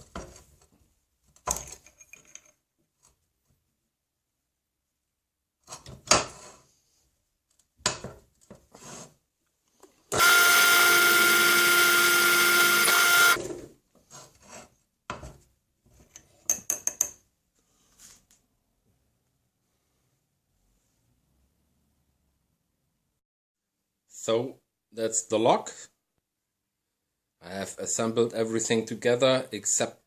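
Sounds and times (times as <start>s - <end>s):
small power tool running: 10.2s - 13.4s.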